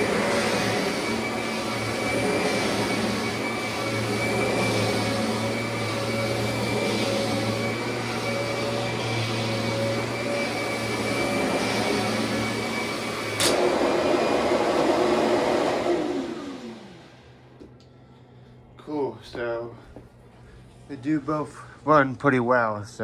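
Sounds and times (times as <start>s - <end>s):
vacuum cleaner motor humming: 0.0s - 17.7s
vacuum cleaner switch click: 13.3s - 13.8s.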